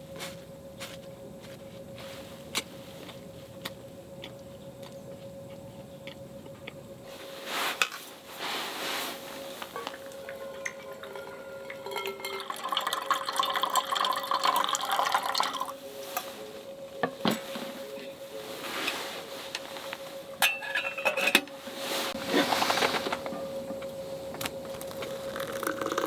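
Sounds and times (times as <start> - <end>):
dishware clinking: 9.8 - 15.7, 20.4 - 21.5
liquid pouring into container: 9.9 - 15.8, 24.8 - 26.0.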